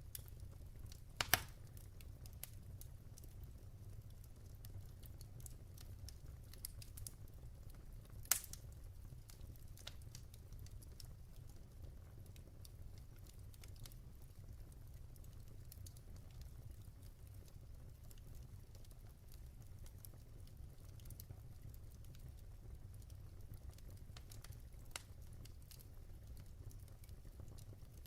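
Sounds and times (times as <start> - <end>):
log fire crackling: 0.0 - 28.0
low fire rumble: 0.0 - 28.0.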